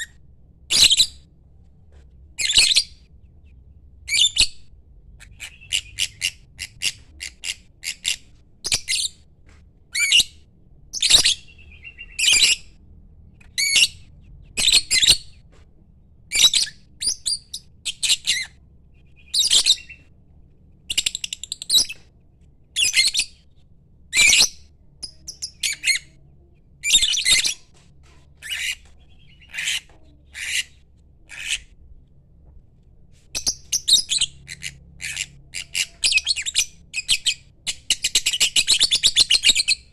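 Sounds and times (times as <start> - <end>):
lovebird chirps and squawks: 0.7 - 1.2, 2.4 - 3.0, 4.1 - 4.6, 5.2 - 9.2, 9.9 - 10.4, 11.0 - 12.8, 13.5 - 15.4, 16.3 - 18.6, 19.2 - 20.0, 22.8 - 23.4, 24.1 - 26.2, 26.8 - 27.7, 28.4 - 31.7, 33.4 - 39.9.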